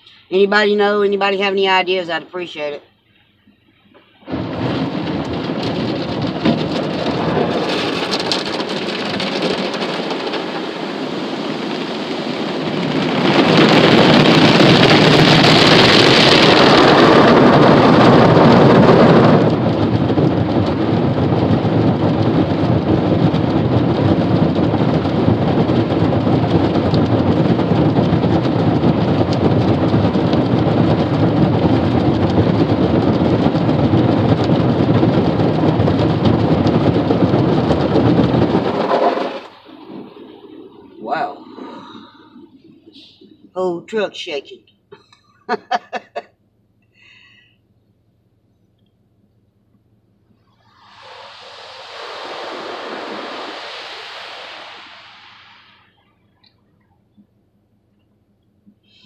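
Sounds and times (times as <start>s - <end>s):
car wash spraying water on truck: 4.2s - 41.3s, 50.3s - 56.0s.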